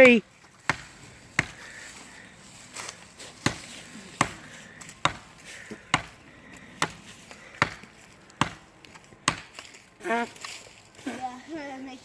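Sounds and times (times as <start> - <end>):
axe chopping wood: 0.0 - 1.8, 2.8 - 9.8.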